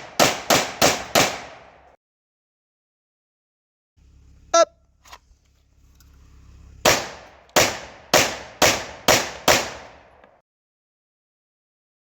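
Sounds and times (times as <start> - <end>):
pistol shots with ringing tail: 0.0 - 1.9, 6.8 - 10.3.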